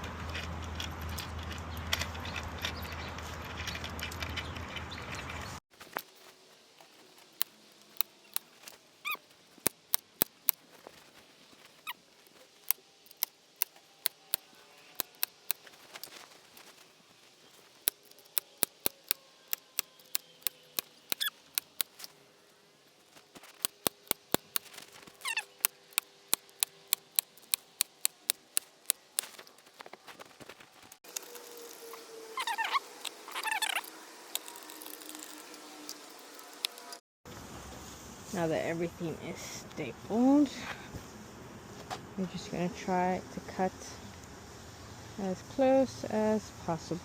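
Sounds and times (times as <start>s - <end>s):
short squeaks: 6.9s - 16.9s, 17.5s - 22.2s, 23.1s - 36.0s.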